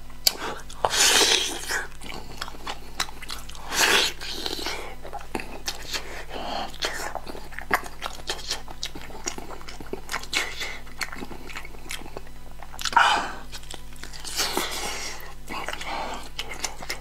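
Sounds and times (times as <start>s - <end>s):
sharp mouth clicks: 0.2s - 6.0s
wet chewing and biting: 0.2s - 17.0s.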